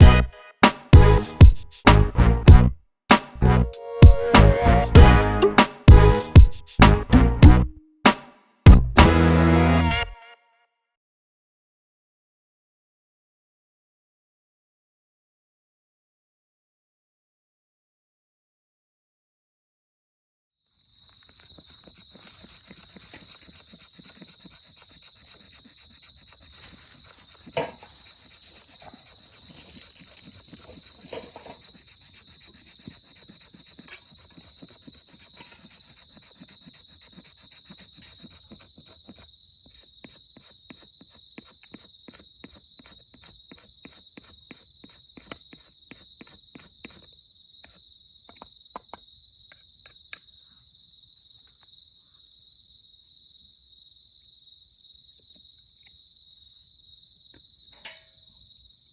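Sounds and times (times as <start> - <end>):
sharp snap: 0.6 - 2.2, 3.1 - 3.4, 5.5 - 7.2, 8.1 - 9.2
insects trilling: 20.7 - 58.9.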